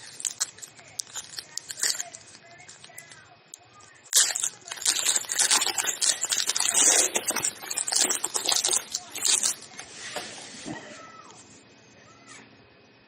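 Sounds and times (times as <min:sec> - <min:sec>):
foil wrapper crinkling and tearing: 0:00.0 - 0:09.7.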